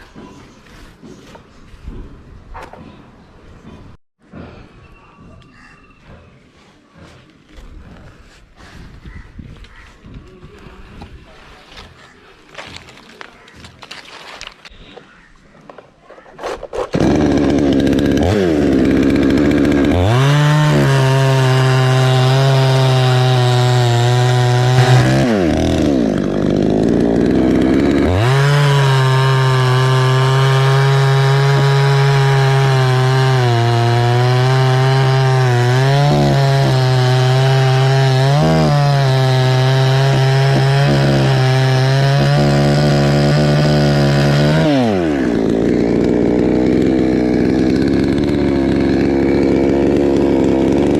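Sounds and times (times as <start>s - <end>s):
chainsaw revving and cutting wood: 16.4s - 50.9s.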